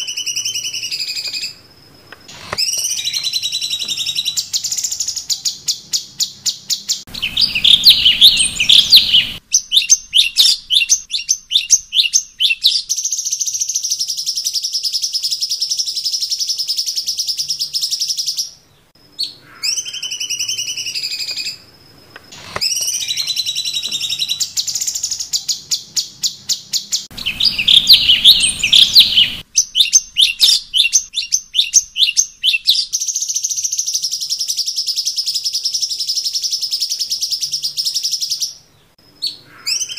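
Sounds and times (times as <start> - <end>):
bird chattering trills: 2.3 - 12.7, 22.3 - 33.9
soft bird whistles: 22.6 - 33.9.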